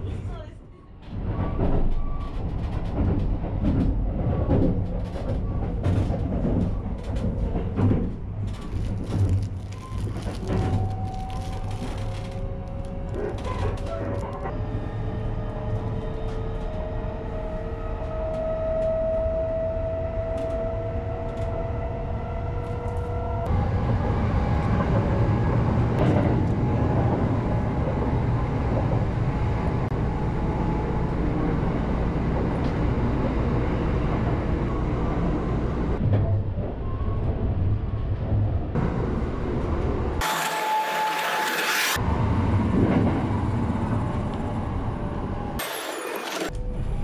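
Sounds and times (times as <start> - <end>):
train wheels rumbling: 0.0 - 40.8.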